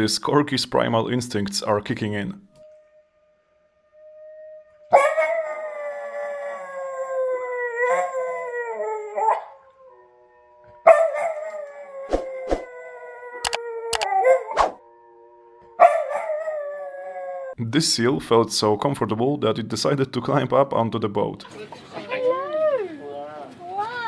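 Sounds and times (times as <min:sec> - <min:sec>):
dog howling: 0:02.6 - 0:17.6, 0:21.9 - 0:24.0
sharp clicks: 0:13.4 - 0:14.1.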